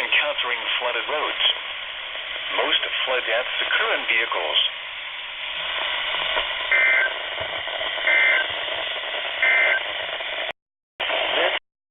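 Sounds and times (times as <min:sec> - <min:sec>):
radio static hiss: 0:00.0 - 0:11.6
warbling digital data tones: 0:06.7 - 0:07.3, 0:08.0 - 0:08.5, 0:09.4 - 0:09.9.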